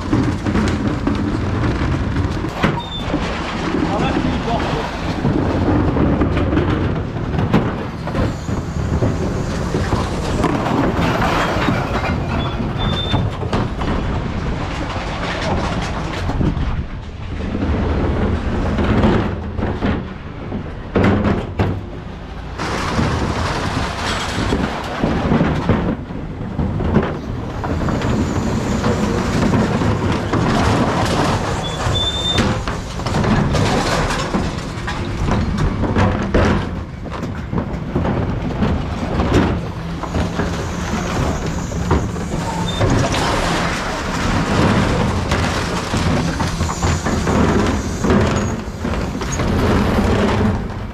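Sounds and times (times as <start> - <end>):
bins clattering and banging: 0.0 - 50.9
truck engine running: 21.5 - 50.9.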